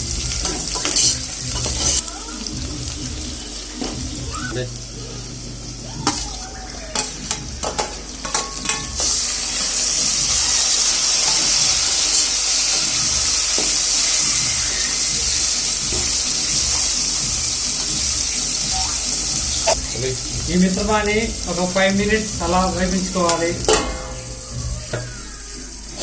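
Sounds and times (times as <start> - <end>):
food sizzling in hot oil: 0.0 - 26.0
utensil clinking against pan: 6.9 - 9.2, 23.3 - 24.3.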